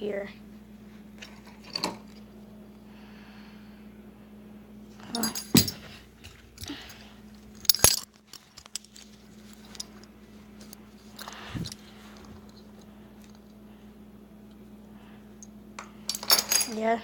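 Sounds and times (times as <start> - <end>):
metallic jingling and clinking: 5.1 - 5.9, 7.6 - 10.0, 16.1 - 16.9
handling rustles: 7.4 - 13.4.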